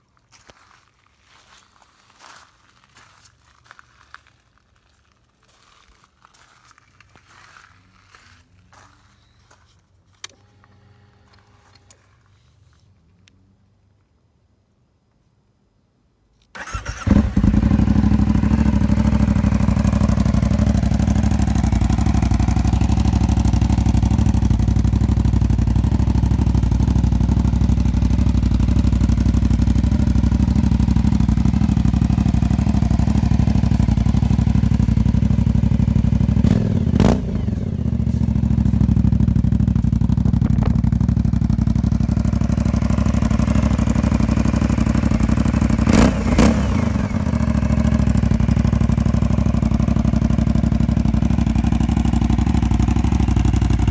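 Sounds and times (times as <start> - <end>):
motorcycle engine starting and idling: 9.5 - 12.2, 16.5 - 53.9.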